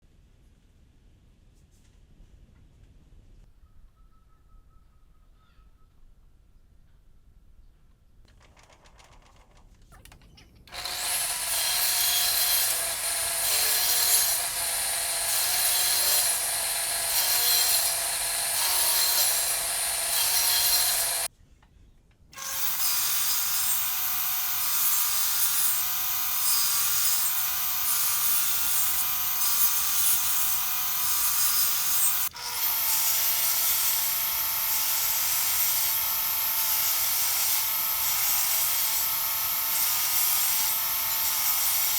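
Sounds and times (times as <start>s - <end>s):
power tool cutting wood: 10.7s - 21.3s, 22.4s - 41.9s.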